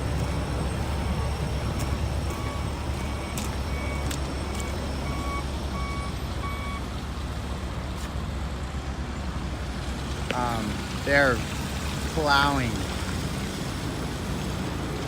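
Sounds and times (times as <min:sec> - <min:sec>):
low engine rumble: 0:00.0 - 0:15.0
back-up alarm beeping: 0:00.2 - 0:06.8.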